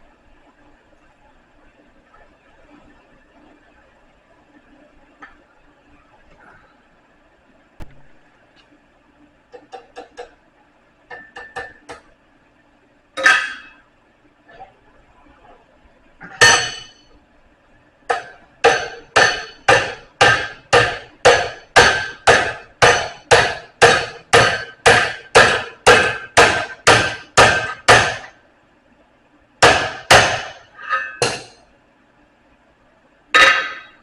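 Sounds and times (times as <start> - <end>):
hammer striking metal on anvil: 13.2 - 13.8, 16.3 - 17.1, 18.1 - 28.3, 29.6 - 31.6, 33.4 - 34.0.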